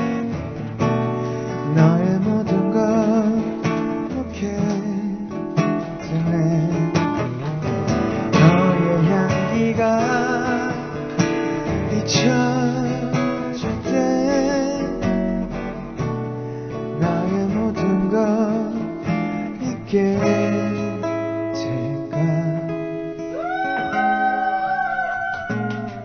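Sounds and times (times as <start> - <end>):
acoustic guitar strumming: 0.0 - 26.0
person singing: 8.3 - 15.1, 19.5 - 26.0.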